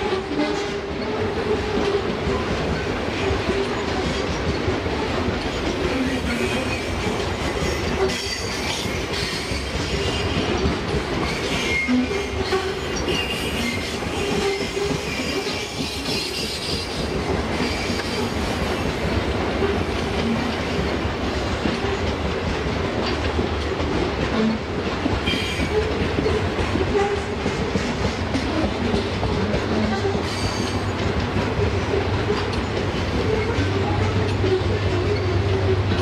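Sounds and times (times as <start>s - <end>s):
diesel locomotive drone: 0.0s - 36.0s
train wheels clacking over rail joints: 0.0s - 36.0s
high wheel squeaks: 29.8s - 31.0s.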